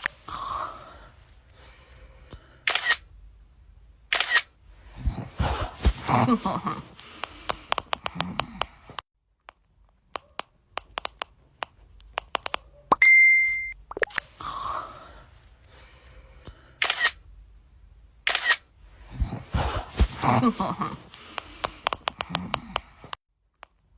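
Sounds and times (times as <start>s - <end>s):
camera shutter clicks: 2.7s - 3.1s, 4.1s - 4.5s, 16.8s - 17.2s, 18.3s - 18.7s.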